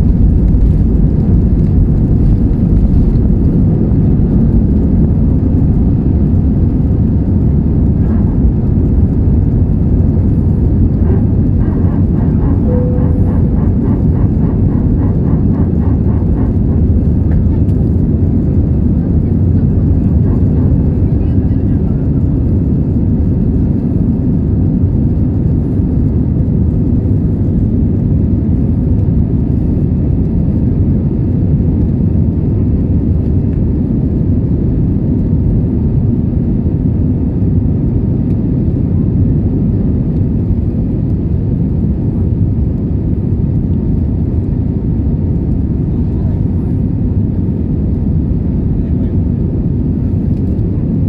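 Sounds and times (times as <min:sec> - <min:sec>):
airplane cabin engine rumble: 0:00.0 - 0:51.0.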